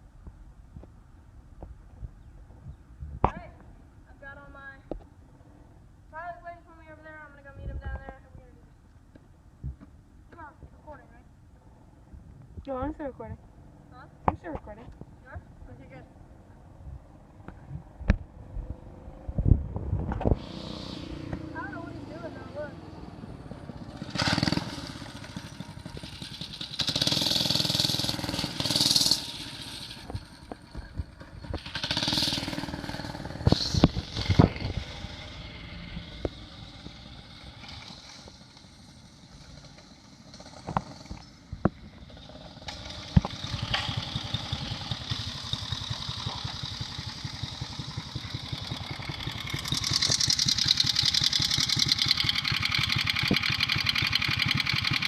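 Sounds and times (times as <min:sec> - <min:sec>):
small engine puttering: 0:20.0 - 0:55.0.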